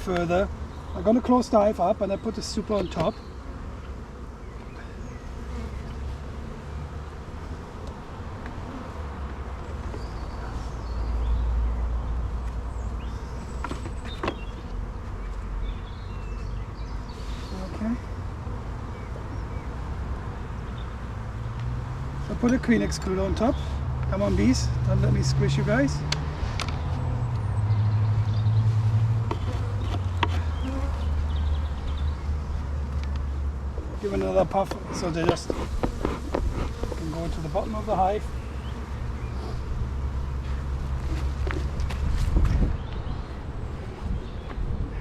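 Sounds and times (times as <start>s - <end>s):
honeybees buzzing: 0.0s - 45.0s.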